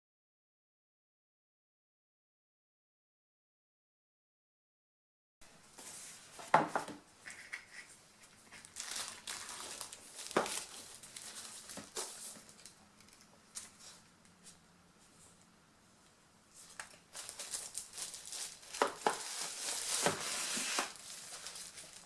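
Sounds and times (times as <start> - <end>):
plastic wrapping crinkling: 7.2 - 14.1, 16.6 - 22.0.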